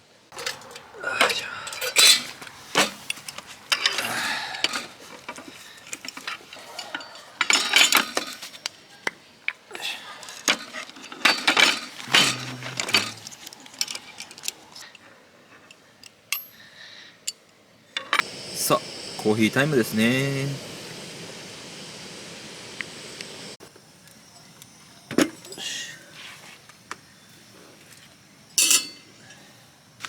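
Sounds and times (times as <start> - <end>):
cutlery and dishes clinking: 28.6 - 29.0.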